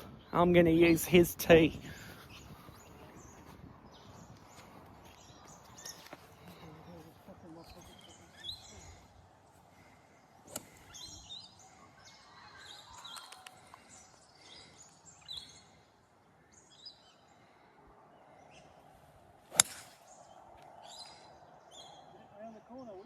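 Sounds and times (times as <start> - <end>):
birds chirping: 0.0 - 23.0
golf club striking ball: 19.5 - 20.1.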